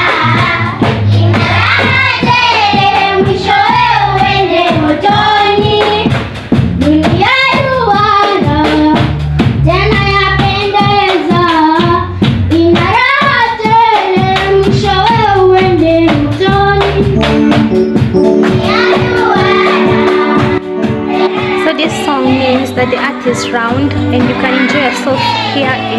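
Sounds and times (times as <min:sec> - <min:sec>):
voices singing a church song: 0:00.0 - 0:06.1, 0:18.6 - 0:25.9
instrumental accompaniment with beat: 0:00.0 - 0:25.9.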